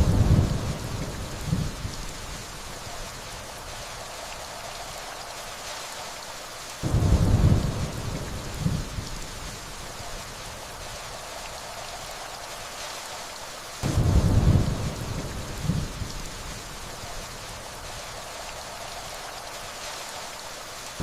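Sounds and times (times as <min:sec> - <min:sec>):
distant thunder rumble: 0:00.0 - 0:02.0, 0:06.8 - 0:09.6, 0:13.8 - 0:16.6
steady rainfall: 0:00.0 - 0:21.0.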